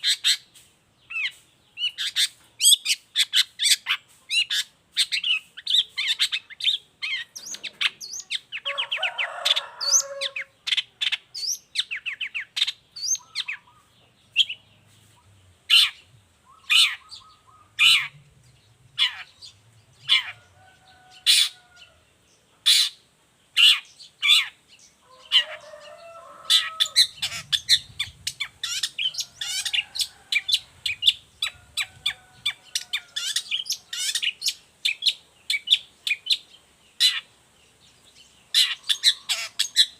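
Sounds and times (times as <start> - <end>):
bird harsh rasping call: 3.2 - 10.8, 15.7 - 18.2, 23.6 - 34.6, 38.5 - 39.9.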